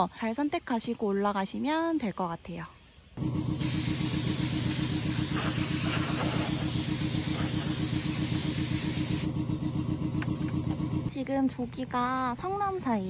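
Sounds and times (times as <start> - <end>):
high steady hiss: 2.0 - 9.3
car engine running: 3.2 - 11.1.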